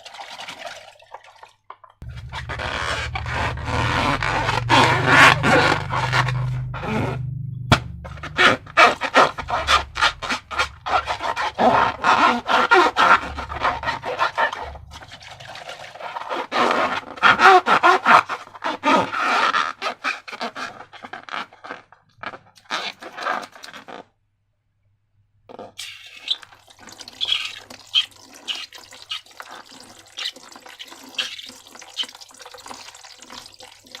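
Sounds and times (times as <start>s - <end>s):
slime squishing by hand: 2.0s - 17.1s.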